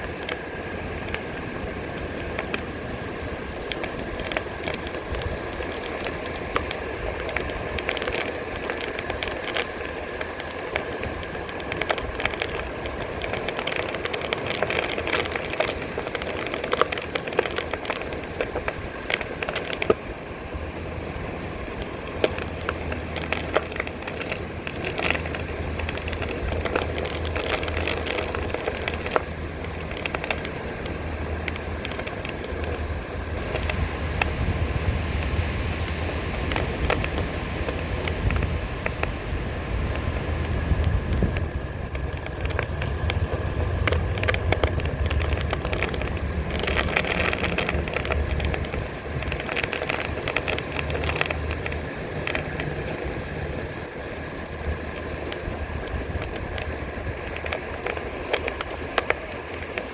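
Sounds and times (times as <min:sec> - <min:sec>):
wind rumbling on microphone: 0:00.0 - 0:59.9
tyre crunching over shells and sand: 0:39.8 - 0:53.2.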